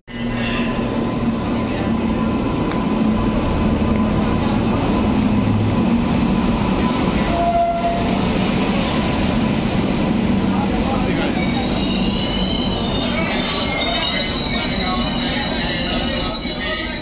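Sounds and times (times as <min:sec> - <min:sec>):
train rumbling: 0:00.1 - 0:17.0.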